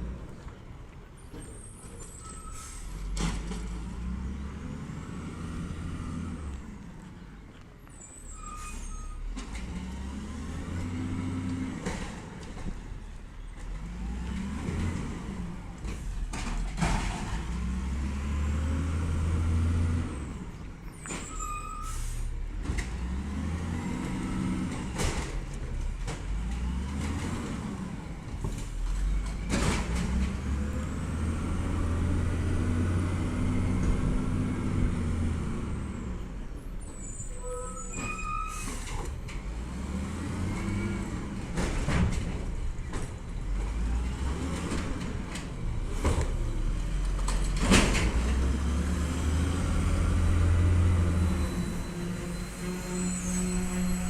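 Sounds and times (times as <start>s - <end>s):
garbage truck engine revving: 13.7s - 20.5s, 22.6s - 36.2s, 38.7s - 54.0s.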